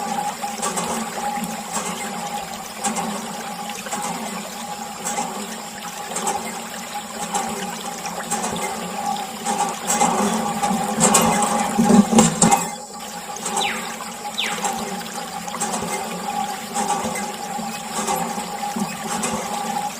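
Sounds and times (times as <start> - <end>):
water pump humming: 0.0 - 19.9
water splashing and trickling: 0.0 - 19.9.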